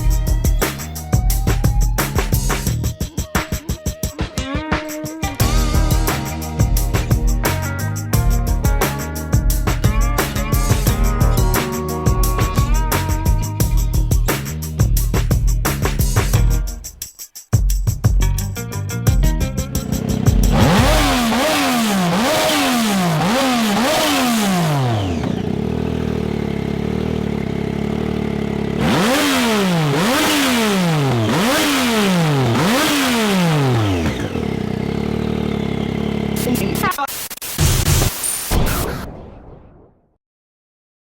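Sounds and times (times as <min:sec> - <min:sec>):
motorcycle engine revving: 0:19.6 - 0:36.9.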